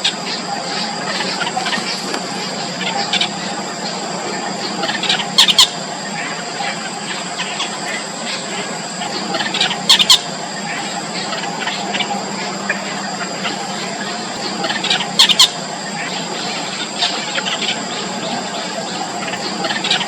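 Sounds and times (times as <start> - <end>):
high-pitched background tone: 0.0 - 20.0
nestlings cheeping: 0.0 - 20.0.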